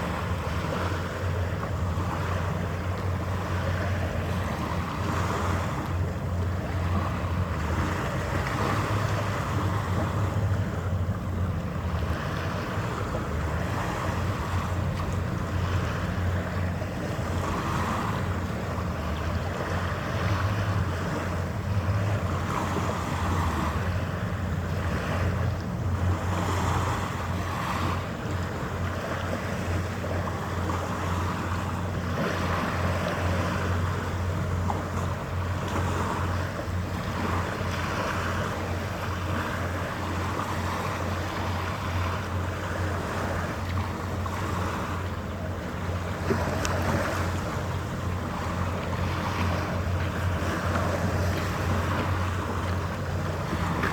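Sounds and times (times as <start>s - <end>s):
ship engines humming: 0.0s - 53.9s
wind gusting on microphone: 46.3s - 53.9s.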